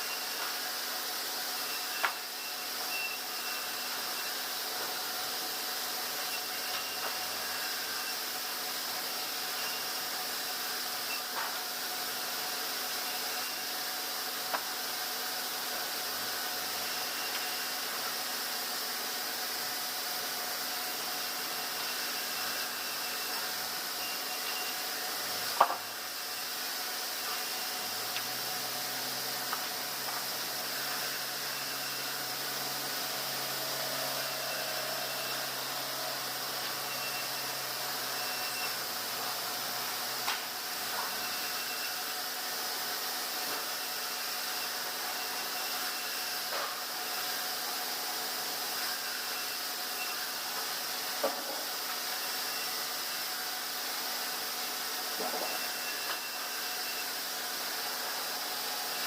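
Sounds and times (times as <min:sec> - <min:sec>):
sawmill machinery hissing: 0:00.0 - 0:59.0
machinery hissing: 0:15.8 - 0:43.0.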